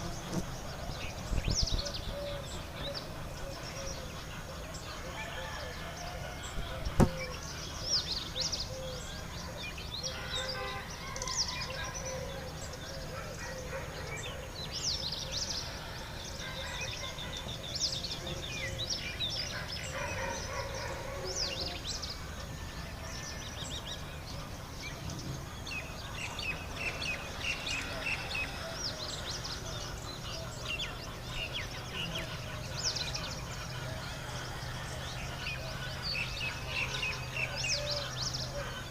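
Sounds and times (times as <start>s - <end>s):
birds chirping: 0.0s - 38.9s
sharp knock: 7.0s - 7.2s.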